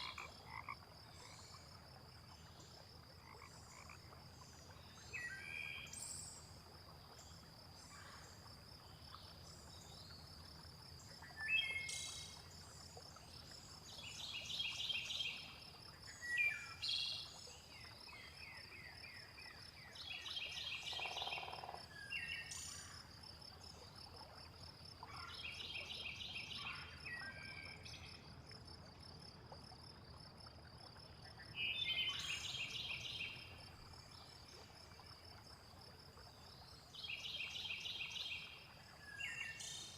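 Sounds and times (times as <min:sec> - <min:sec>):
low croak-like call: 0:20.8 - 0:21.8.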